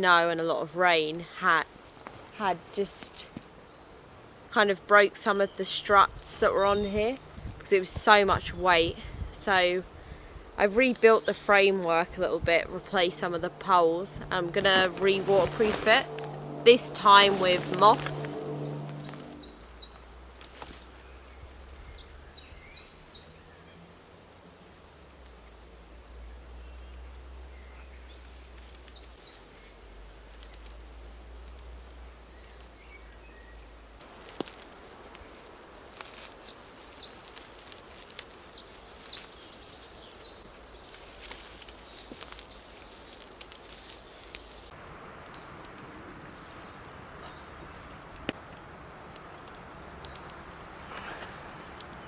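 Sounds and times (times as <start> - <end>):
steady outdoor hiss: 0.0 - 52.0
small birds chirping: 0.9 - 23.8, 26.5 - 34.1, 36.4 - 48.6, 49.8 - 52.0
brief rustle: 50.0 - 52.0.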